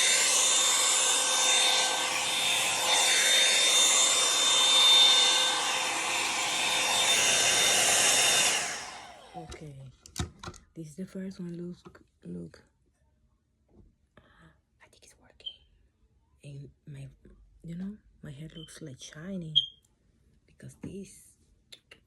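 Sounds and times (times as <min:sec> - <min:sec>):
hair dryer brush running: 0:00.0 - 0:09.6
hair dryer switched off: 0:00.0 - 0:09.6.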